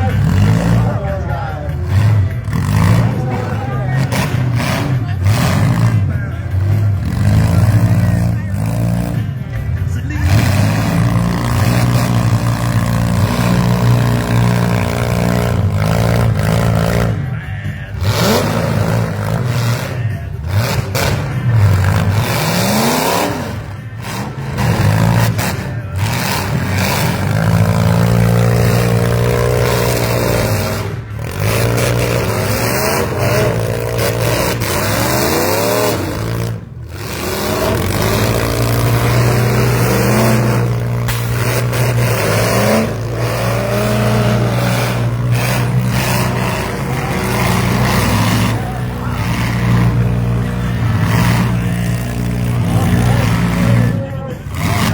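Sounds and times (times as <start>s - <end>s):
engines revving: 0.0s - 54.9s
metal clattering and scraping: 17.9s - 54.9s.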